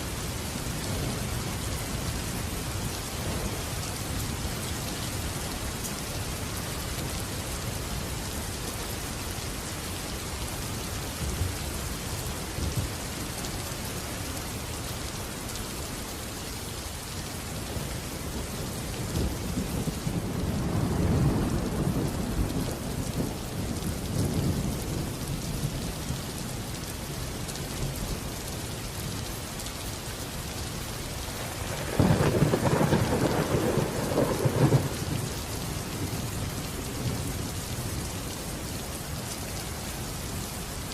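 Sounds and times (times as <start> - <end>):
steady rain falling: 0.0 - 40.9
thunder rumbling: 31.3 - 37.5
loud thunderclap: 31.4 - 35.2.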